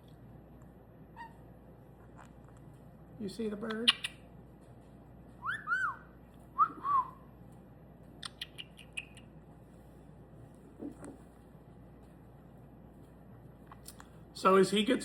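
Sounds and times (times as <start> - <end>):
parrot chirps: 1.1 - 1.4, 3.7 - 4.2, 5.4 - 6.8, 8.2 - 9.4
parrot whistling: 1.1 - 1.4, 5.4 - 7.2.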